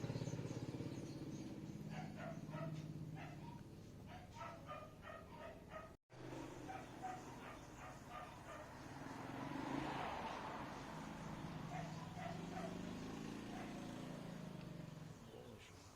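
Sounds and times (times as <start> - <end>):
dog yapping: 1.8 - 6.0, 6.6 - 8.8, 11.6 - 14.0.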